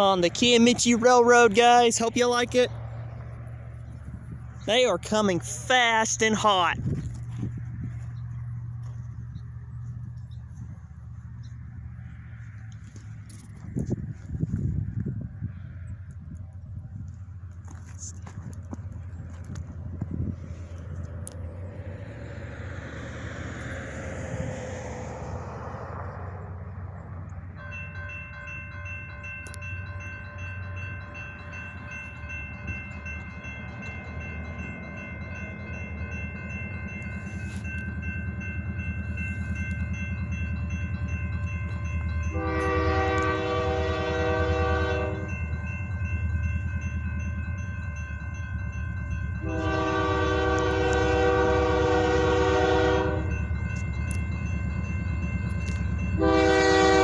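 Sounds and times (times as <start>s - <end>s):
locomotive engine rumble: 0.0s - 57.0s
locomotive air horn blast: 42.3s - 45.3s, 49.4s - 53.3s, 56.2s - 57.0s.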